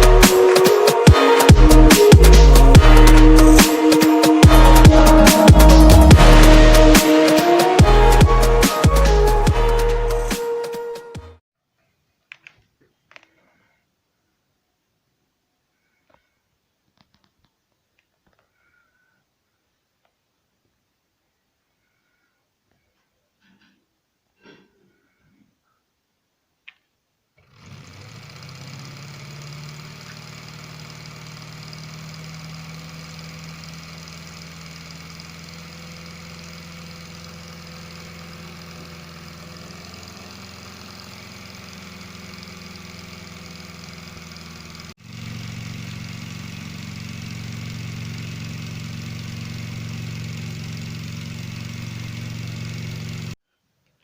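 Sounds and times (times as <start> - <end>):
small electric motor whirring: 27.4 - 53.4.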